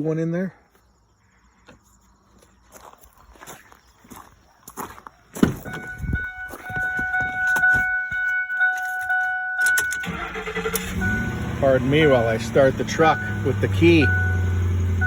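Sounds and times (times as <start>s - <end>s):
footsteps: 1.6s - 9.4s
truck door thump: 5.4s - 5.9s
pulsing dashboard warning chime: 5.6s - 15.0s.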